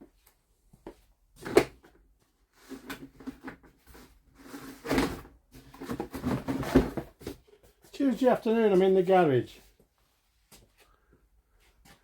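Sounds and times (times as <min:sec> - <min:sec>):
objects clattering and scraping: 0:01.4 - 0:07.9.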